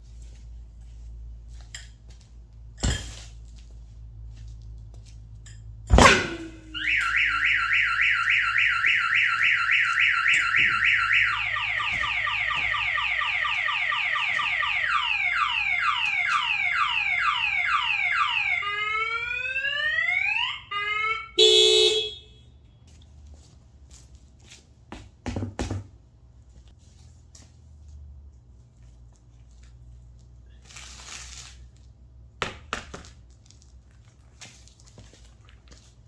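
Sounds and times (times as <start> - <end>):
loud alarm blast: 5.9 - 22.1
car alarm siren: 6.0 - 22.3.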